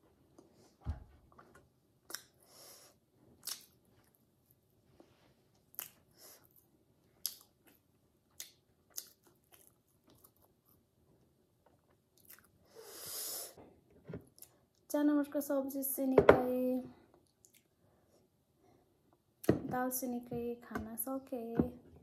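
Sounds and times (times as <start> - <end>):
closed-mouth chewing: 2.0 - 2.4, 3.4 - 3.8, 7.2 - 10.8, 12.2 - 12.6.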